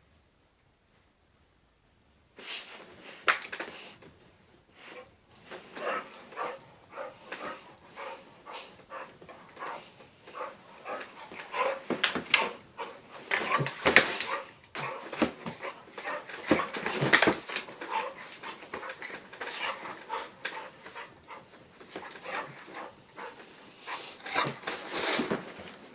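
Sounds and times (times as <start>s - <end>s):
animals scuffling: 4.8s - 25.9s
dog whining and grunting: 5.8s - 24.6s.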